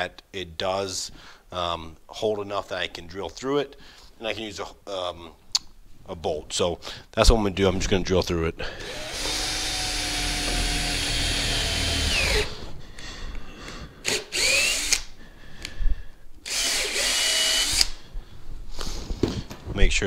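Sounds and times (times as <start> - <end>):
cordless drill boring through rubber: 8.8 - 12.6, 14.0 - 15.1, 16.4 - 18.0.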